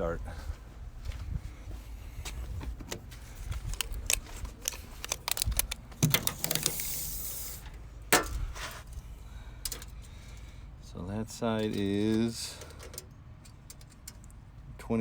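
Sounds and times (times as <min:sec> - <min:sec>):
tape measure clicking and rattling: 0:03.6 - 0:07.7
tape measure hissing rush: 0:06.4 - 0:07.8.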